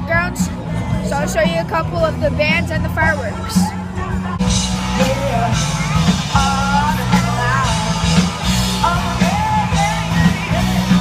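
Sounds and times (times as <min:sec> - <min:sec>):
low bass notes: 0:00.0 - 0:11.0
rock band playing: 0:00.0 - 0:11.0
person singing: 0:04.2 - 0:11.0.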